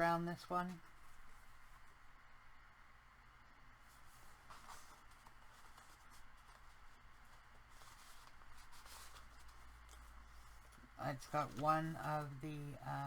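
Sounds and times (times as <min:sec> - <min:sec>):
paper pages rustling: 0:03.8 - 0:12.7.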